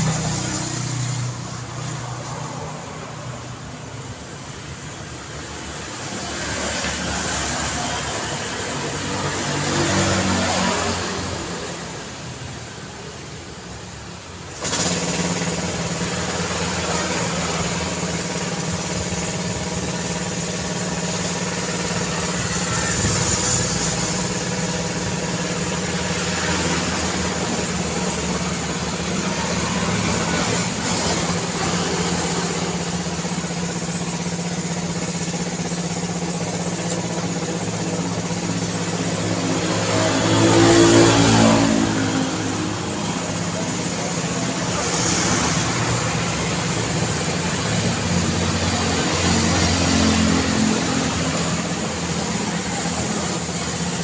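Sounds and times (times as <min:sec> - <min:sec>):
vehicle passing close: 0:00.0 - 0:12.8, 0:14.4 - 0:54.0
vehicle engines running: 0:00.0 - 0:54.0.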